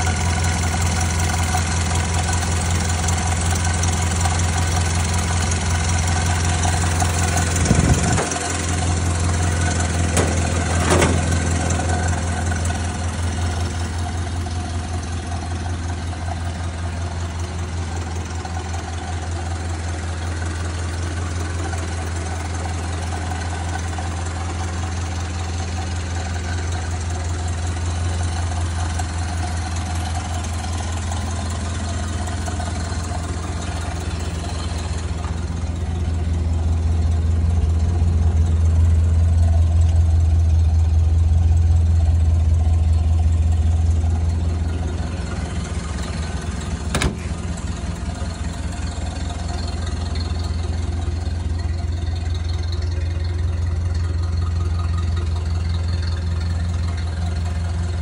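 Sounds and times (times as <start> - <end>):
car engine idling: 0.0 - 58.0
brief engine bumps: 7.6 - 8.8, 9.6 - 12.2, 46.0 - 47.8.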